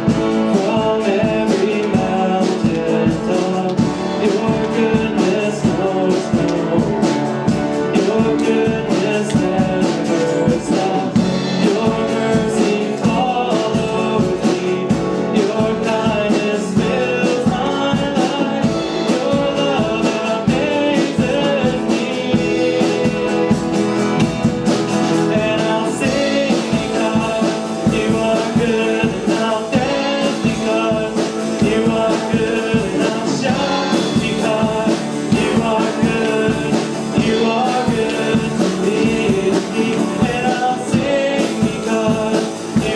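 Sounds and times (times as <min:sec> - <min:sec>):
worship song with band: 0:00.0 - 0:42.9.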